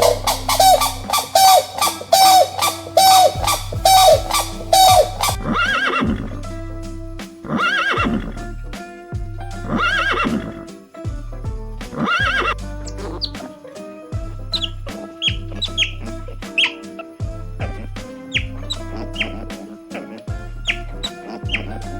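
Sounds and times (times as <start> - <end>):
horse whinnying: 0.0 - 6.3, 7.5 - 8.4, 9.7 - 10.6, 12.0 - 12.6
background music: 0.0 - 21.9.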